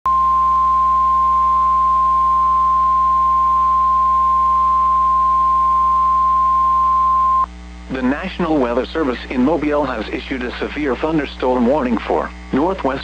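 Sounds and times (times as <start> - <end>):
loud steady alarm tone: 0.1 - 7.5
faint low hum: 0.1 - 13.0.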